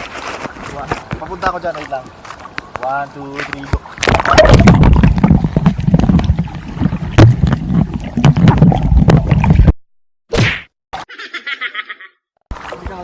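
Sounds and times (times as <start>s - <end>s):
water splashing and bubbling: 2.0s - 9.8s, 12.5s - 13.0s.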